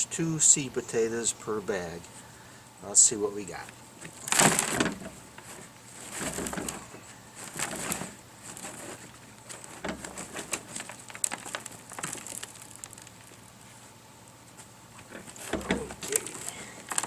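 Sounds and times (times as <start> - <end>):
hands rustling through soil: 4.0 - 17.0.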